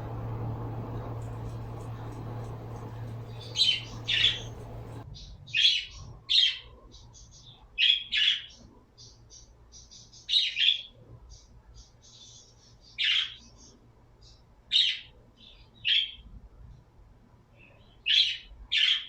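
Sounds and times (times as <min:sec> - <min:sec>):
birds squawking: 0:00.0 - 0:05.0
steady low hum: 0:00.0 - 0:05.0.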